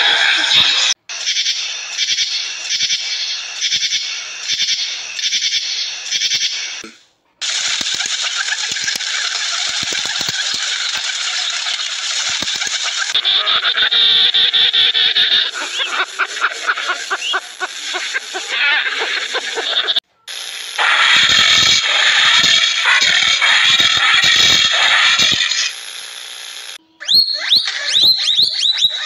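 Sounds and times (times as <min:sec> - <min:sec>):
pigeons rattling clicks and scuffling: 0:07.4 - 0:13.2.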